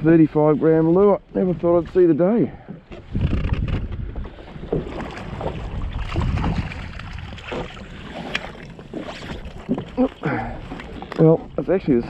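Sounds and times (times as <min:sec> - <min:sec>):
water lapping against hull: 0:00.0 - 0:12.0
wind buffeting microphone: 0:02.9 - 0:12.0.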